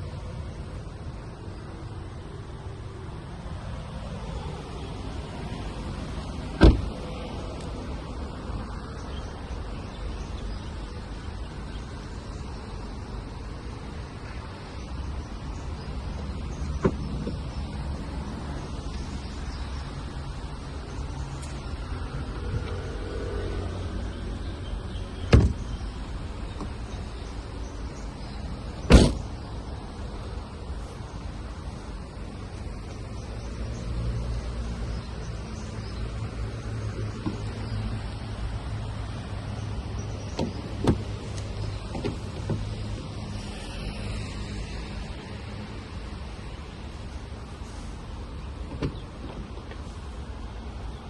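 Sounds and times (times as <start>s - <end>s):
car door shutting: 6.5s - 7.0s, 16.3s - 17.8s, 25.2s - 25.8s, 28.8s - 29.3s, 36.9s - 37.8s, 40.2s - 43.1s, 48.6s - 49.9s.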